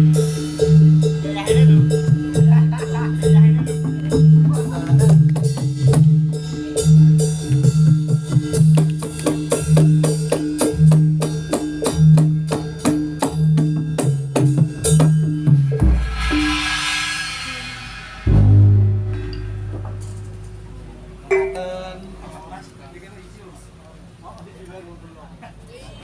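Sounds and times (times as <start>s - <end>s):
cymbal crash: 0.0s - 8.5s, 13.4s - 21.8s
percussion music over loudspeakers: 0.0s - 21.8s
sustained low notes: 15.8s - 22.2s
low boom: 17.4s - 21.2s.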